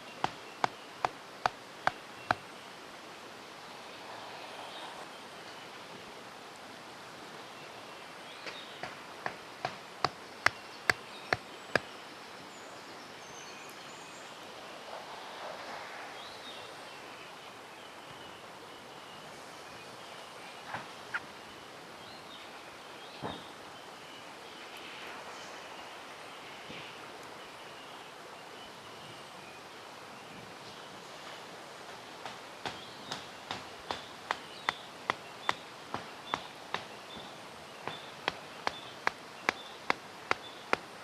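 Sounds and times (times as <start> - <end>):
mountain stream rushing: 0.0 - 18.8, 29.5 - 41.0.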